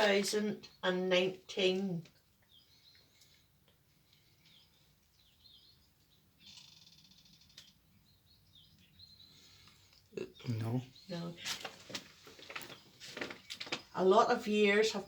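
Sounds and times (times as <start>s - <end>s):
faint high bird chirps: 4.1s - 11.6s.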